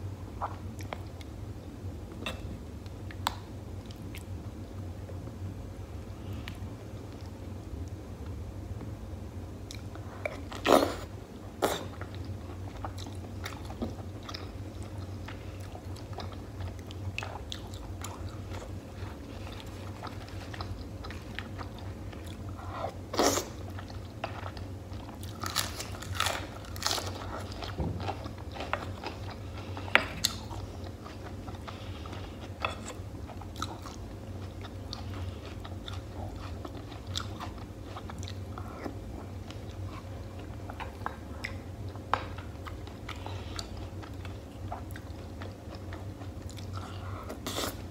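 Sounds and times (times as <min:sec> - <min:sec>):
steady low hum: 0:00.0 - 0:47.9
lettuce crunching: 0:24.4 - 0:29.4.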